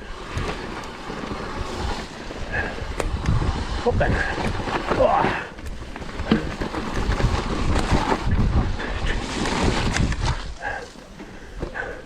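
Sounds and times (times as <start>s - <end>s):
bike tyres rumbling on rough trail: 0.0s - 12.0s
wind rushing on microphone: 1.4s - 6.3s, 6.9s - 10.8s.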